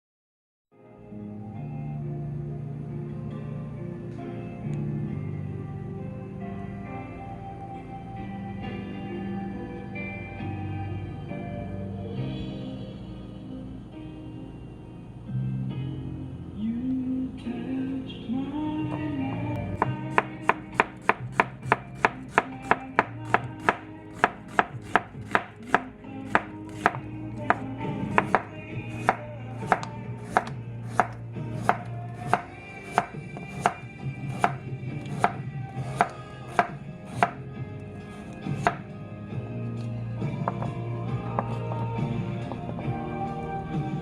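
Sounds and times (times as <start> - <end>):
knife chopping on cutting board: 19.8 - 37.4, 38.0 - 38.8.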